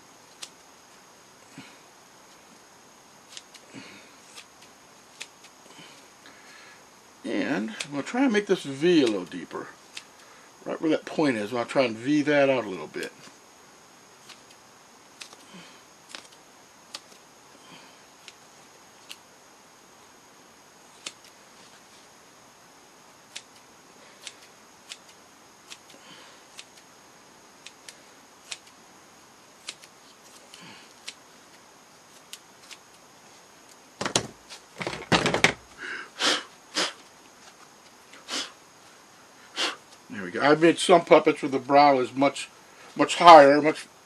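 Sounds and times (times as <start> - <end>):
scissors snipping foam: 21.0 - 21.3, 24.2 - 26.8, 29.6 - 31.2
handling knocks and rustles: 34.0 - 35.7.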